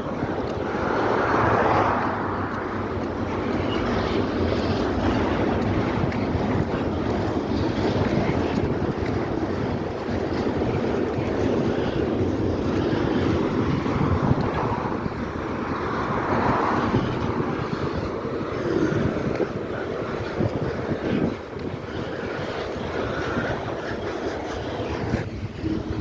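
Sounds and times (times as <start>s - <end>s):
train rumbling over bridge: 0.0s - 22.9s, 23.6s - 26.0s.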